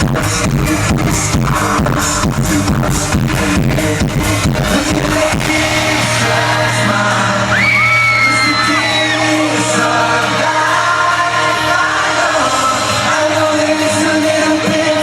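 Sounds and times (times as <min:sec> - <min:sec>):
amplified pop backing track: 0:00.0 - 0:15.0
boy band singing: 0:00.0 - 0:15.0
fans screaming and whooping: 0:04.8 - 0:13.0.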